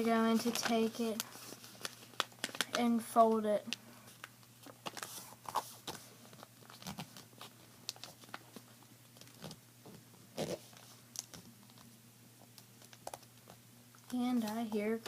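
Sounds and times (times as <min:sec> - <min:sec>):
paper being folded and creased: 0:00.3 - 0:02.8, 0:04.6 - 0:09.6.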